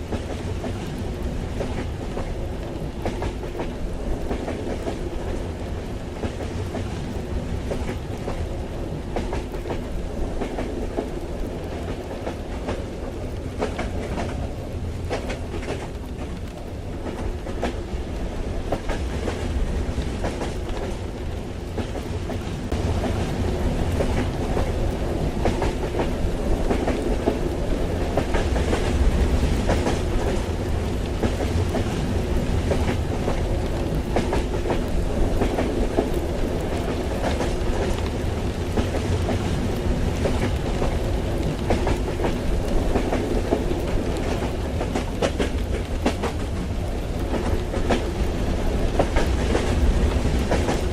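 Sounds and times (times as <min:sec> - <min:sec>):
rail clatter: 0:00.0 - 0:50.9
rain pattering on windows: 0:00.0 - 0:50.9
train running rumble: 0:00.0 - 0:50.9.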